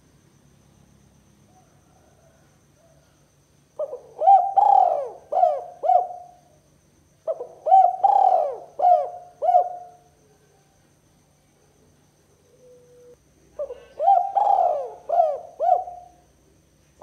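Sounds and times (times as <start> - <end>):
dove cooing: 3.8 - 6.5, 7.3 - 10.6, 12.5 - 16.2.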